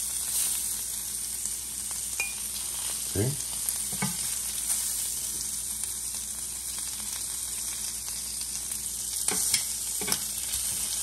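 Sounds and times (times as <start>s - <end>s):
shrimp sizzling on grill pan: 0.0s - 11.0s
metal tongs clicking on pan: 9.3s - 10.3s.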